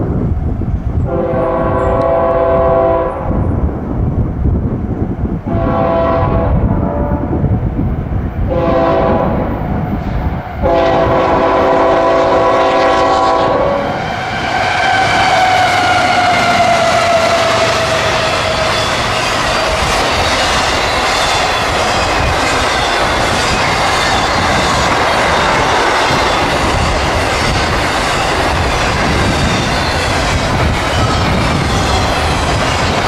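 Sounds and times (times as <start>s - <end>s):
locomotive air horn blasts: 1.1s - 3.3s, 5.5s - 7.3s, 8.5s - 9.5s, 10.6s - 13.9s
locomotive passing: 7.4s - 33.0s
train wheel clatter: 14.4s - 33.0s.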